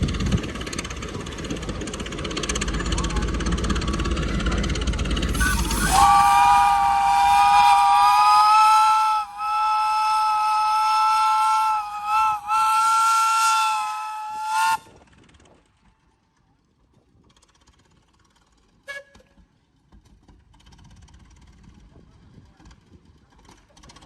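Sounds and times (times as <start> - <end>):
steam whistle chord: 5.2 - 14.8.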